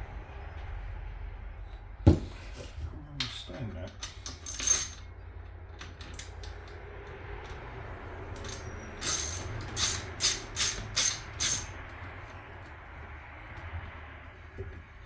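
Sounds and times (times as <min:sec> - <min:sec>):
metallic clink: 0:04.0 - 0:05.1, 0:08.4 - 0:11.8
ratchet wrench strokes: 0:08.4 - 0:11.8.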